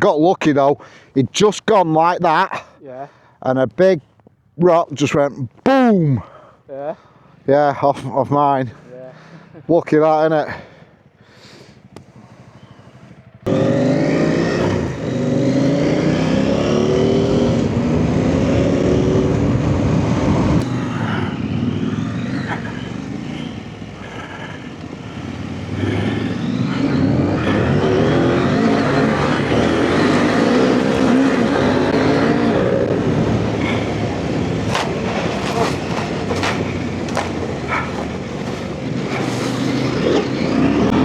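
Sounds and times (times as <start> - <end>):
motorcycle engine revving: 10.7 - 41.0.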